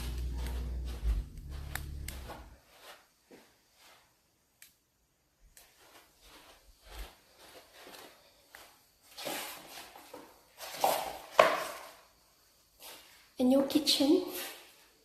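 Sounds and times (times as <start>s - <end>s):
low rumble: 0.0s - 2.5s
footsteps: 0.0s - 4.1s, 5.5s - 11.9s.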